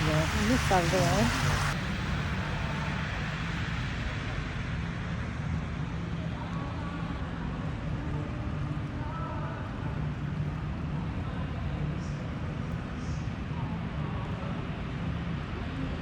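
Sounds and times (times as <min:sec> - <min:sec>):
faint voices: 0:00.0 - 0:01.8
fire engine idling: 0:00.0 - 0:03.8.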